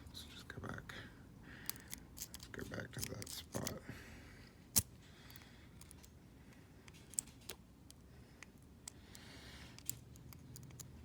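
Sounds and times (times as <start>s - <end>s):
lock pick clicking: 9.8s - 10.9s.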